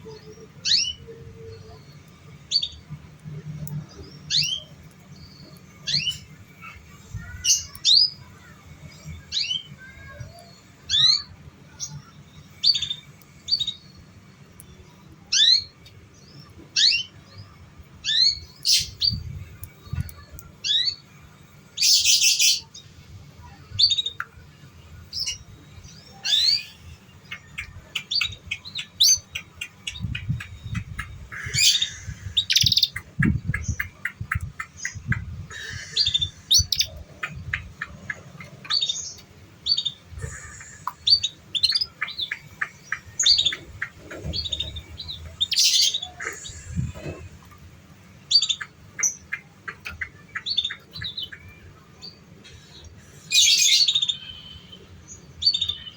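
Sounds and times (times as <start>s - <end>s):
canary singing: 25.1s - 47.2s, 48.1s - 55.9s.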